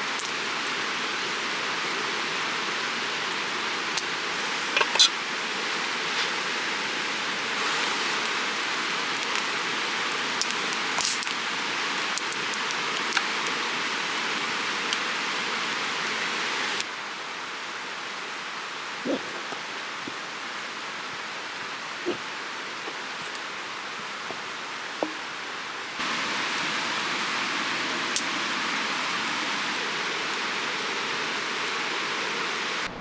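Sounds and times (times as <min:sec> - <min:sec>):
campfire crackling: 0:00.0 - 0:16.9, 0:26.0 - 0:33.0
creek water rushing: 0:23.6 - 0:33.0.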